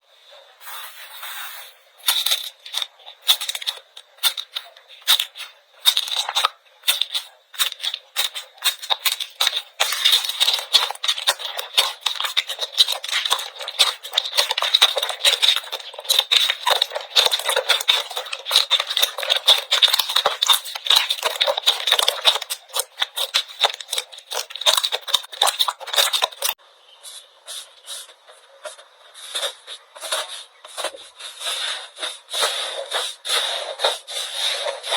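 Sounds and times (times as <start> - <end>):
slime crackling and clicking: 2.0 - 26.6.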